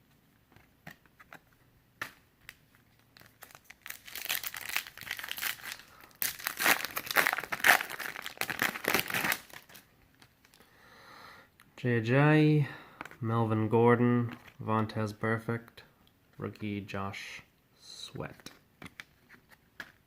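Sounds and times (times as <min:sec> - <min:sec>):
plastic wrapper tearing and crinkling: 0:02.5 - 0:10.6.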